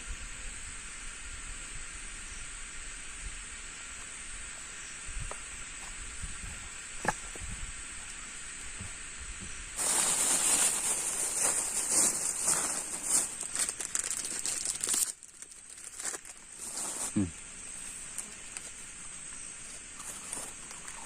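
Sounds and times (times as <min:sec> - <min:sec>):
faint steady hiss: 0:00.0 - 0:21.0
loud crinkling and rustling: 0:09.8 - 0:17.2, 0:19.6 - 0:21.0.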